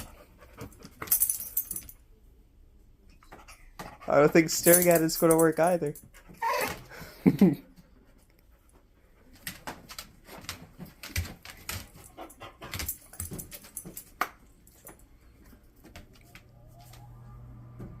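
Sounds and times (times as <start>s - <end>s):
dog claws scratching floor: 9.3s - 17.1s.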